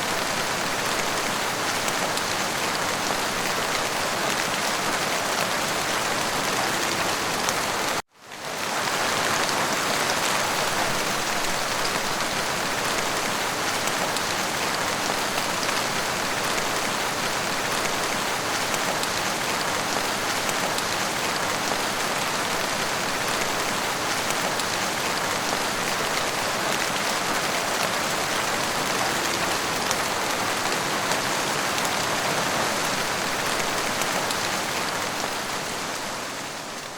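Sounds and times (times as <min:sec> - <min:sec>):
dense rainfall: 0:00.0 - 0:36.9.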